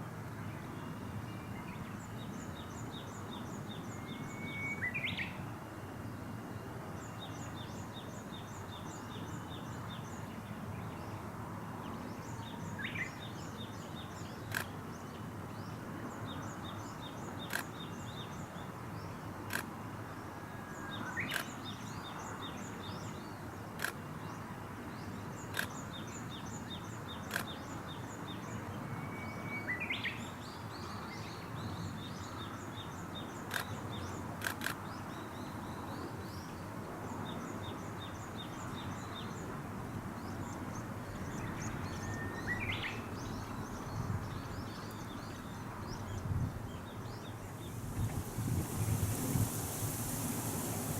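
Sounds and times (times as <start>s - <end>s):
short rising whistles: 47.6s - 50.9s.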